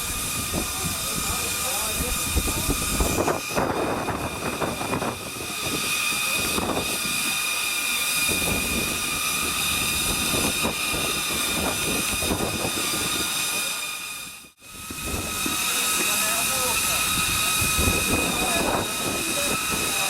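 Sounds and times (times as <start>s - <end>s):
steam engine hissing: 0.0s - 20.0s
faint voices: 0.4s - 8.2s, 12.8s - 14.5s, 15.1s - 20.0s.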